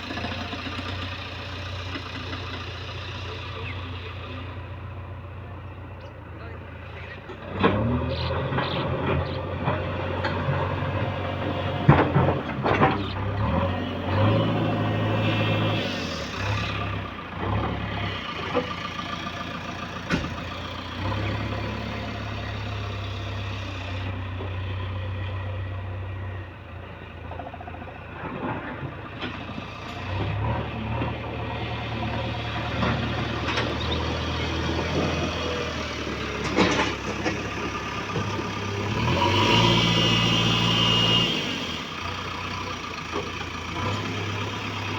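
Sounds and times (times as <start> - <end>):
heavy diesel engine running: 0.0 - 44.9
metal clanks and knocks: 36.4 - 37.5.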